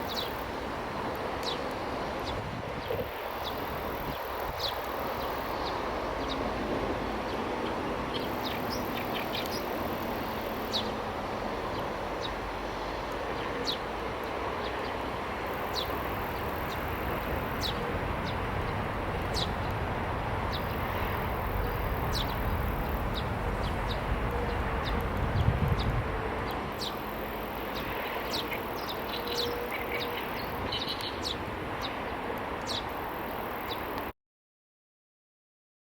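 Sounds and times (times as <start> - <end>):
steady background noise: 0.0 - 34.1
sparrows chirping: 2.2 - 6.6, 8.1 - 10.9, 15.5 - 18.4, 19.3 - 19.7, 20.5 - 26.0, 26.8 - 34.0.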